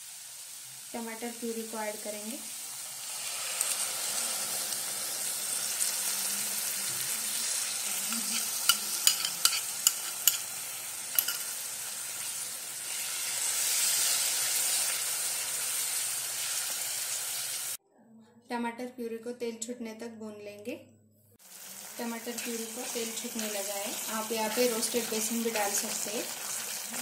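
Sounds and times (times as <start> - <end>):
tomato puree sizzling in hot oil: 0.0 - 17.8, 21.4 - 27.0.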